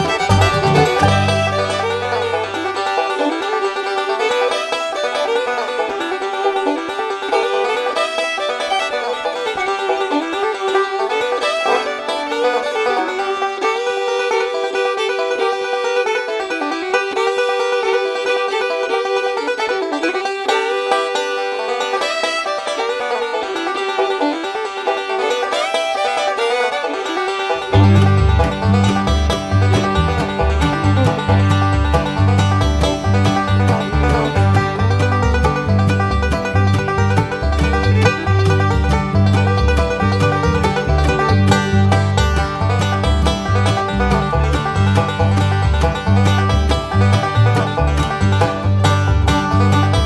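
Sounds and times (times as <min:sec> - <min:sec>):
bluegrass banjo music: 0:00.0 - 0:50.0.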